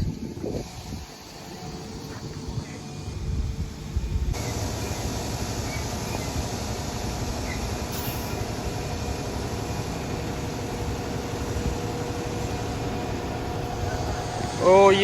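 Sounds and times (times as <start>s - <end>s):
golf cart rumbling on road: 4.3s - 15.0s.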